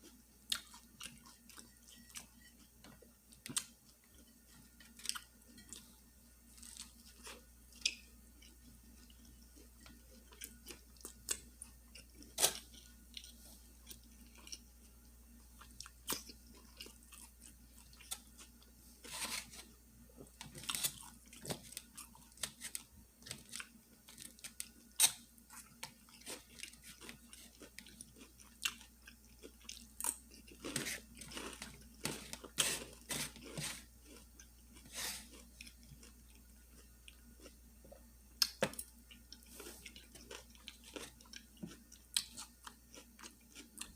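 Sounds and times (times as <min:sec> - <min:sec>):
person chewing and crunching food: 0:00.0 - 0:43.9.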